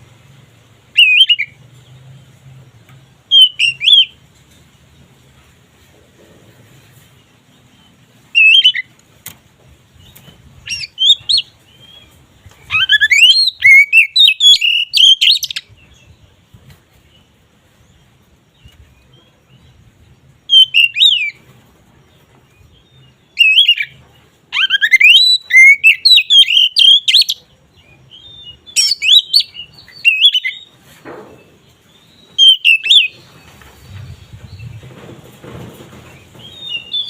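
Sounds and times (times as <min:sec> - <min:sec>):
bird singing whistled notes: 0:00.9 - 0:01.6, 0:03.3 - 0:04.2, 0:08.3 - 0:08.9, 0:10.0 - 0:16.2, 0:20.4 - 0:21.4, 0:22.6 - 0:30.7, 0:31.9 - 0:34.8, 0:36.4 - 0:37.0.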